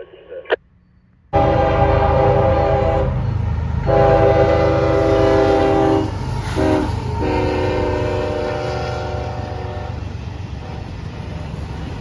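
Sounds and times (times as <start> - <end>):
low rumble of passing train: 0.6 - 12.0
train air horn blasts: 1.4 - 10.9.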